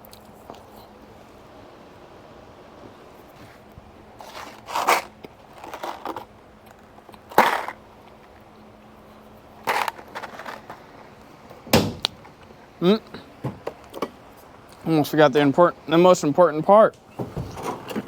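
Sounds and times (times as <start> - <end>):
rustling and knocking handling noises: 9.2 - 14.6, 16.9 - 18.0.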